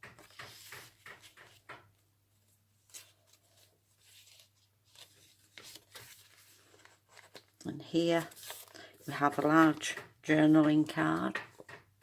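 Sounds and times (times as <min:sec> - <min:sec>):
paper pages rustling: 0:00.0 - 0:01.8, 0:02.4 - 0:09.9.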